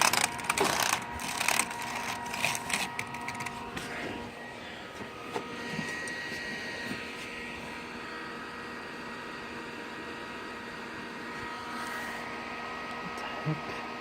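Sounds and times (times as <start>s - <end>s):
computer hardware clicking and rattling: 0.0s - 3.7s
computer fans whirring: 0.0s - 14.0s.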